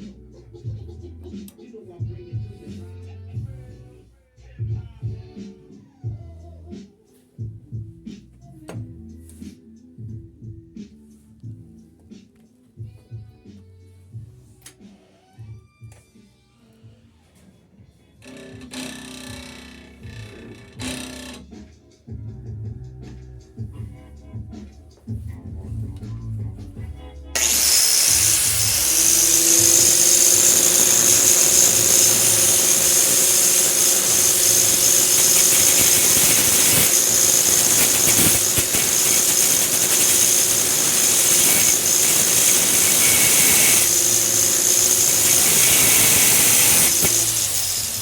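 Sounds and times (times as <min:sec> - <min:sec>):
loud high hiss: 0:27.4 - 0:48.0
power tool running: 0:27.4 - 0:48.0.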